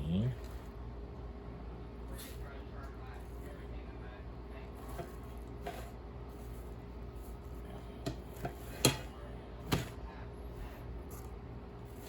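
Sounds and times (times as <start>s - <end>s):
steady low hum: 0.0s - 12.0s
kitchen items knocking and clicking: 8.0s - 10.0s.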